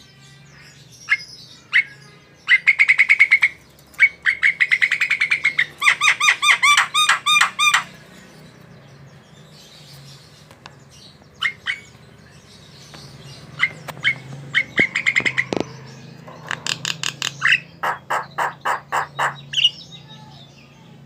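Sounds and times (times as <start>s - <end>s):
myna calling: 1.1s - 8.0s, 13.3s - 20.5s.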